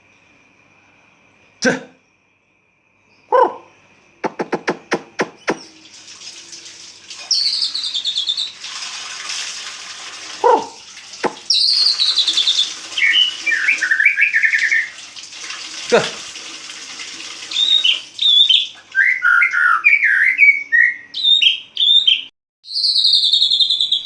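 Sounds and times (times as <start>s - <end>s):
bird calls: 3.3s - 5.8s, 7.2s - 8.6s, 10.4s - 14.9s, 17.5s - 24.0s
sharp clicks: 4.2s - 5.7s
bird singing whistled notes: 4.5s - 5.8s, 7.2s - 8.6s, 11.5s - 14.9s, 17.6s - 24.0s.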